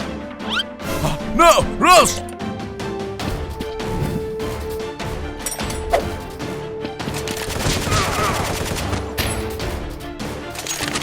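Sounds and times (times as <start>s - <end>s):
background music: 0.0s - 11.0s
gunfire bursts: 7.1s - 9.2s.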